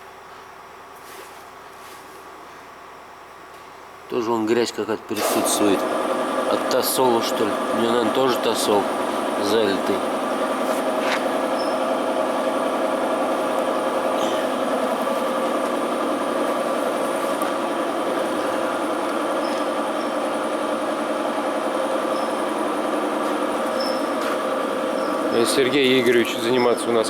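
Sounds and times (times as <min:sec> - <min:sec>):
engine idling: 0:05.6 - 0:27.0.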